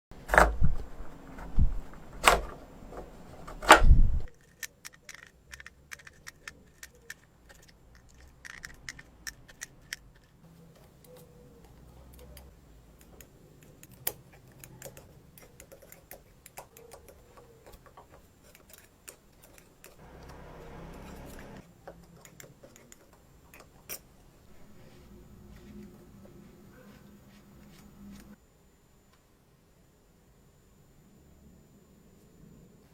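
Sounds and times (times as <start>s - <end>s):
small metal parts clicking: 4.3s - 10.4s, 12.1s - 20.0s.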